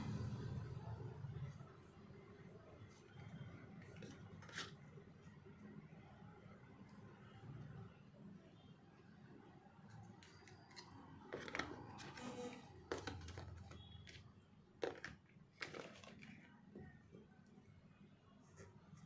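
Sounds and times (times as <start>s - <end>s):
packaging rustling and crinkling: 14.8s - 16.5s.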